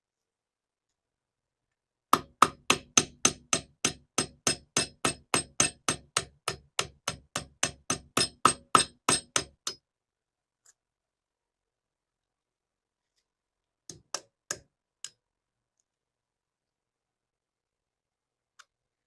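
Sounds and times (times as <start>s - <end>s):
hammer striking metal: 2.2s - 9.8s.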